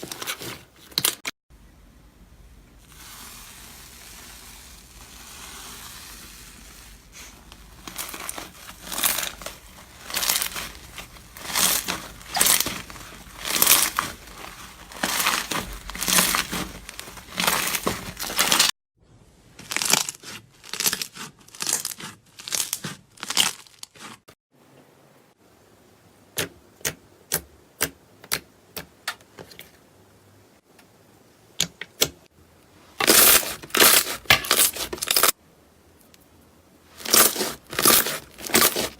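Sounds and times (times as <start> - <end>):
slime squishing: 2.8 - 18.7, 19.6 - 24.2, 37.0 - 38.9.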